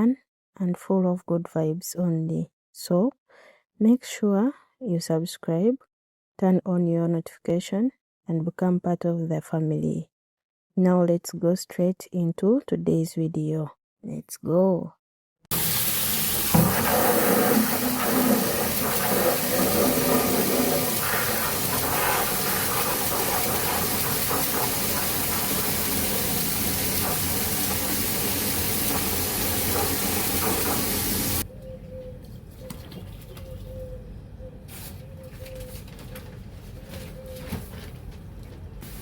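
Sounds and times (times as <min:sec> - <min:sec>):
water running and pouring: 0:15.5 - 0:31.4.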